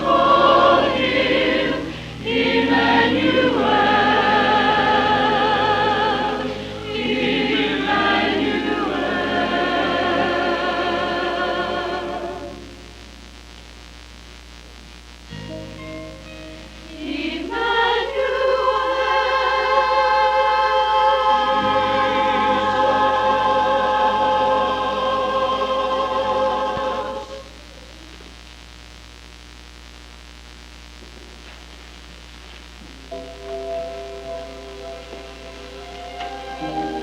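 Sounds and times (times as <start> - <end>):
choir singing: 0.0 - 12.6, 16.9 - 27.5, 35.7 - 37.0
music: 0.0 - 13.4, 14.6 - 28.1, 32.2 - 37.0
low tape hum: 0.0 - 37.0.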